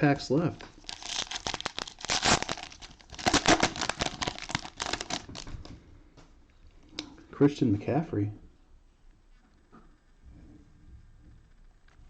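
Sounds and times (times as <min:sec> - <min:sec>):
cellophane wrapper tearing and crinkling: 0:00.6 - 0:05.7.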